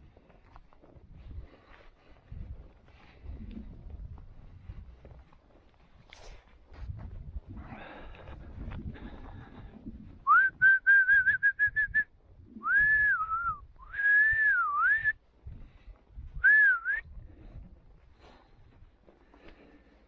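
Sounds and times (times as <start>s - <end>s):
person whistling a tune: 10.3s - 15.2s, 16.4s - 17.1s.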